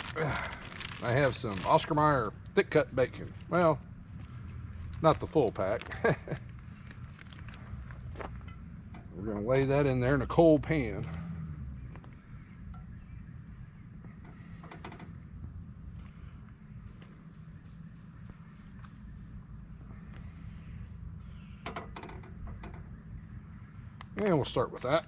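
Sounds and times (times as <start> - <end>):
crickets chirring: 0.0 - 25.0
faint bird chirps: 11.3 - 14.8, 19.9 - 23.9.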